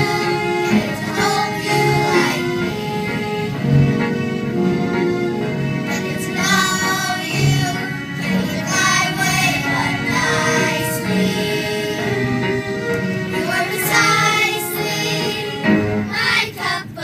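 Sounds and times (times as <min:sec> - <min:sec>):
group of singers: 0:00.0 - 0:03.7, 0:05.9 - 0:12.4, 0:13.2 - 0:17.0
instrumental accompaniment: 0:00.0 - 0:17.0.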